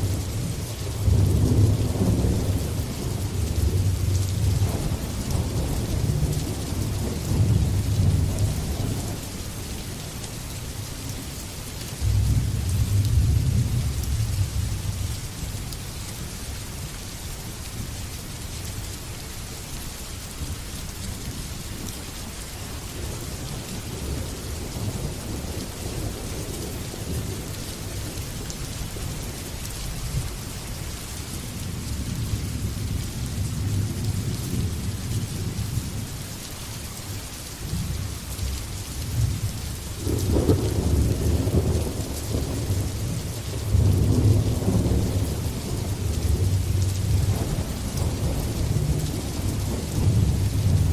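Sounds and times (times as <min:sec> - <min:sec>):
thunder rumbling: 0:00.0 - 0:09.2, 0:37.7 - 0:50.9
heavy rain hissing: 0:00.0 - 0:50.9.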